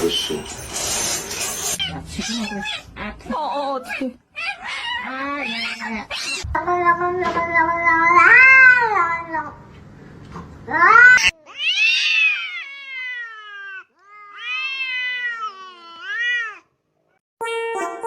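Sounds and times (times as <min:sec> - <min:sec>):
cat yowling: 0:01.8 - 0:03.0, 0:03.9 - 0:09.5, 0:10.7 - 0:16.7.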